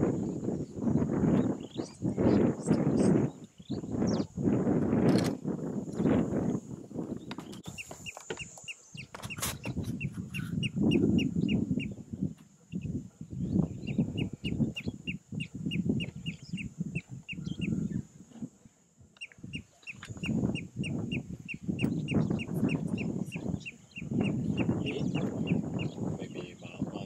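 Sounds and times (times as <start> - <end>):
bird chirping: 7.2 - 18.1, 19.2 - 27.0.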